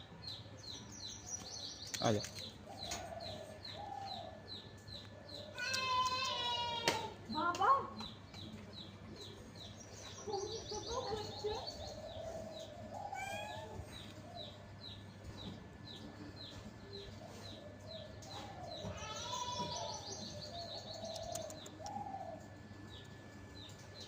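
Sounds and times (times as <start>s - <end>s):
bird chirping: 7.3s - 24.0s.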